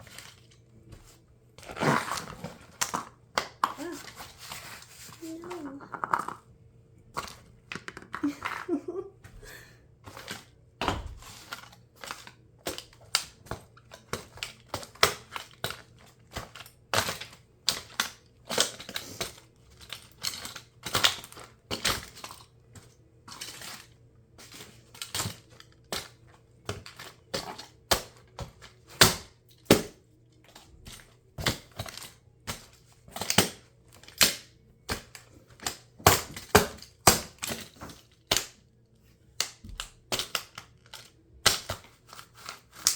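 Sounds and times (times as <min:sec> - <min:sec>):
plastic toy cracking and snapping: 0:31.4 - 0:38.6, 0:39.4 - 0:42.9.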